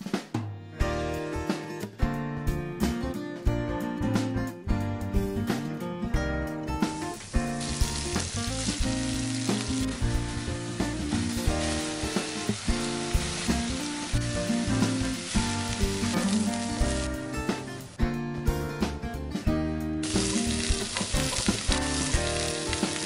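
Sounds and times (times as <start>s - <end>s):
light guitar music: 0.6s - 23.0s
mushrooms frying in oil: 6.9s - 18.0s, 20.0s - 23.0s.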